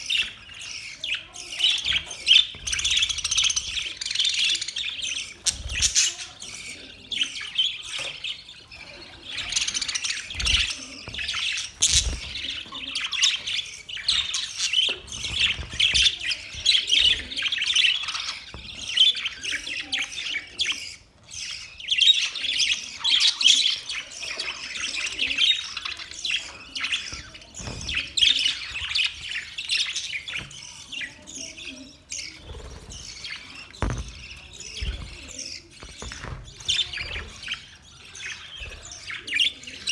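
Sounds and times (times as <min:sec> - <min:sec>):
budgerigars chirping and chattering: 0:00.0 - 0:39.9
low thumps: 0:32.7 - 0:37.5.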